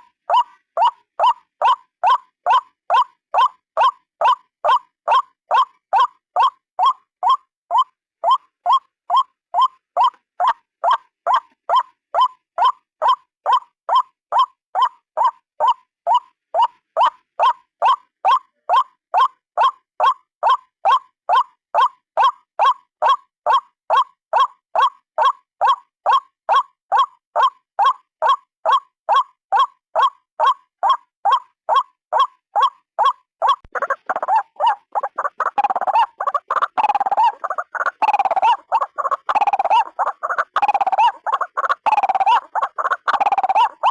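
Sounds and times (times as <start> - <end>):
waterhen calling: 32.6 - 43.9.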